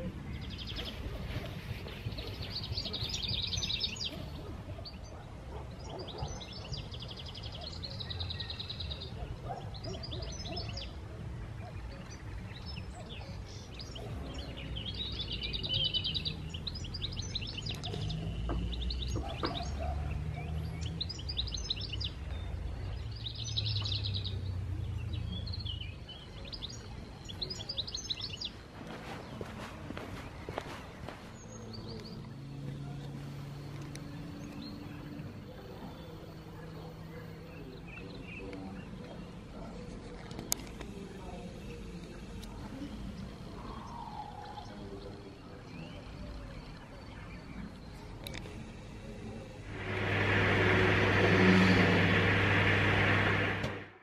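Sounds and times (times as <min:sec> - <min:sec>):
songbirds singing: 0:00.0 - 0:54.0
low steady rumble: 0:49.2 - 0:54.0.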